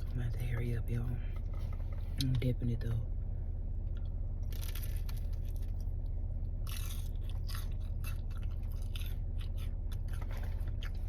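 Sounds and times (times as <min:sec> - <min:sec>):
car running hum: 0:00.0 - 0:11.0
chewing and biting food: 0:04.4 - 0:11.0.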